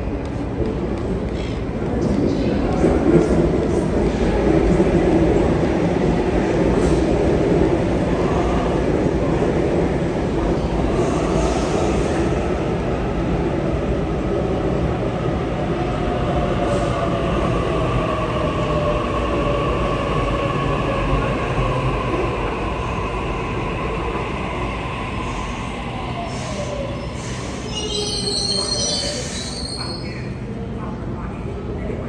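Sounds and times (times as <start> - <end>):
electric train rumbling: 0.0 - 32.0
train braking whine: 25.2 - 30.2.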